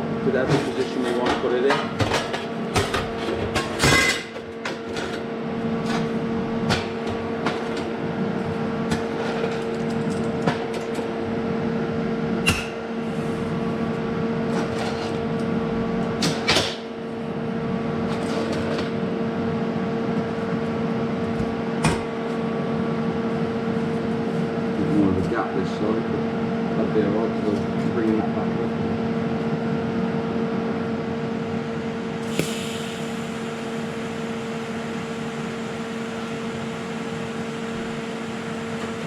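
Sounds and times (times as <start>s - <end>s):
electrical hum: 19.0s - 39.0s.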